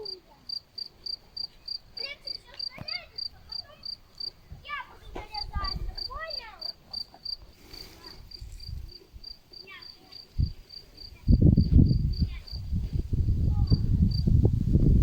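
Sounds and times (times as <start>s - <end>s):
cricket chirping: 0.0s - 4.4s, 5.4s - 12.8s.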